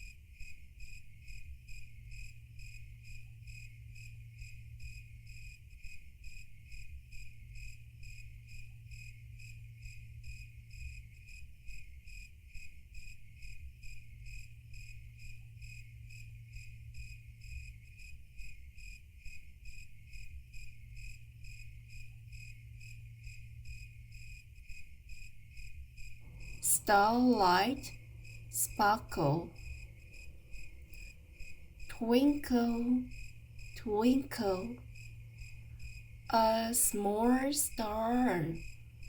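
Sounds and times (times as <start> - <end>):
crickets chirping: 0.0 - 39.0
low steady hum: 25.2 - 39.0.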